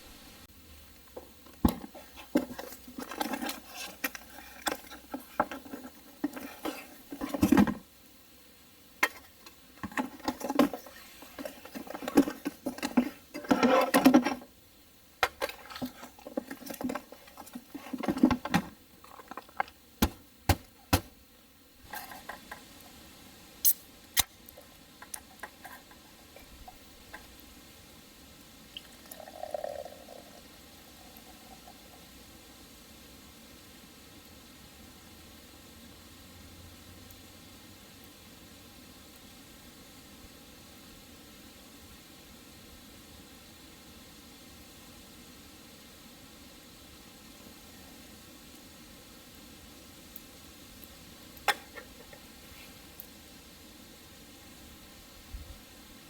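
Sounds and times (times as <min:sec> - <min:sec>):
rustling: 0:09.0 - 0:14.6, 0:15.2 - 0:21.1.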